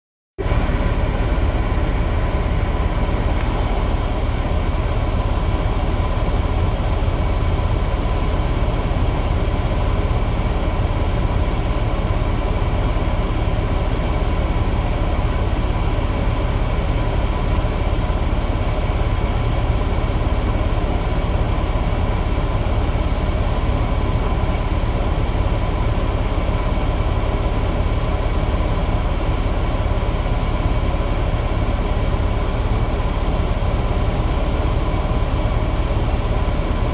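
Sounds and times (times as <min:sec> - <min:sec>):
diesel engine droning: 0:00.4 - 0:36.9.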